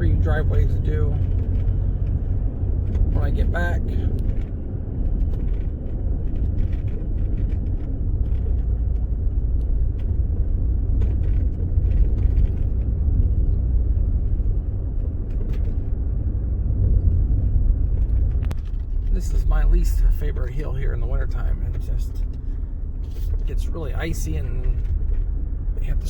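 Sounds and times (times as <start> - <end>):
car engine and tyres rumbling: 0.0 - 26.0
small clicks and ticks: 0.5 - 16.0.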